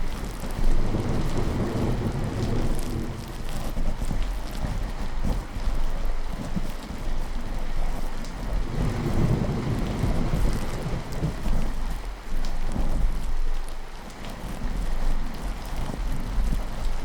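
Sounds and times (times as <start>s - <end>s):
steady rainfall: 0.0s - 17.0s
rolling thunder: 0.4s - 4.0s, 8.6s - 11.9s.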